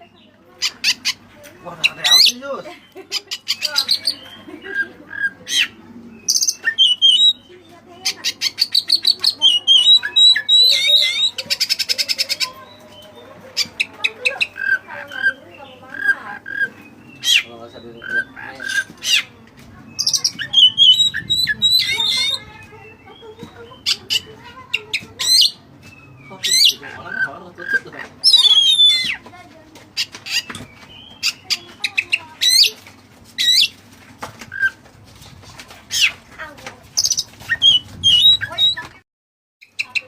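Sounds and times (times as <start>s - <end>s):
magpie-robin singing: 0.0s - 33.8s, 35.8s - 36.2s, 37.0s - 39.0s, 39.6s - 40.0s
fast rattling bird trills: 0.6s - 12.7s, 20.0s - 25.7s, 26.4s - 29.2s, 30.0s - 32.8s, 37.0s - 39.0s.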